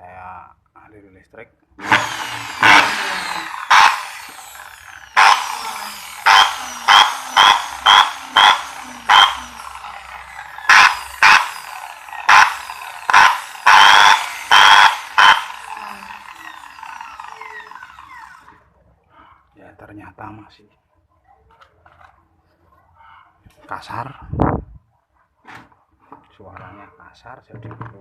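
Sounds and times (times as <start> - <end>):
electric drill motor bursts: 1.8 - 18.6.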